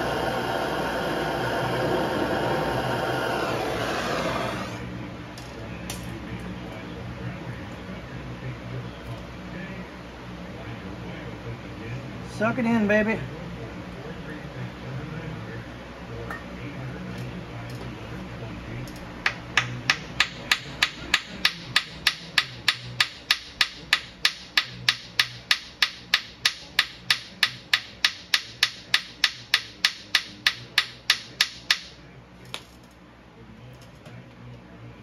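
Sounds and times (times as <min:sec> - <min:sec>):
hammer striking metal: 0:19.2 - 0:32.0.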